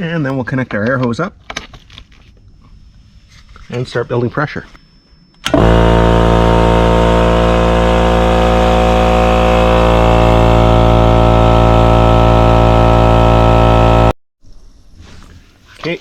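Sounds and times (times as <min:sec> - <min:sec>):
air compressor running: 0:05.4 - 0:14.2.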